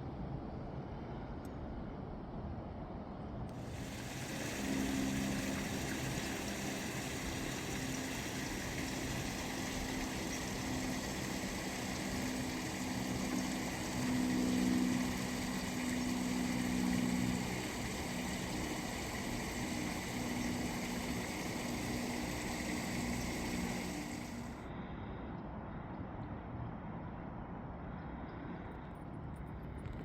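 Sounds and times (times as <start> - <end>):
outdoor background hiss: 3.5 - 24.7
low hum: 3.6 - 24.7.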